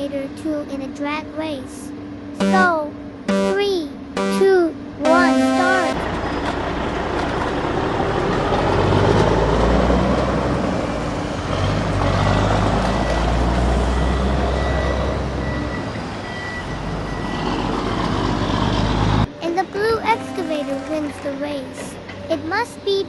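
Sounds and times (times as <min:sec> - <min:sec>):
faint high-pitched beeping: 0:02.4 - 0:06.0
heavy vehicle engine rumble: 0:05.9 - 0:23.0.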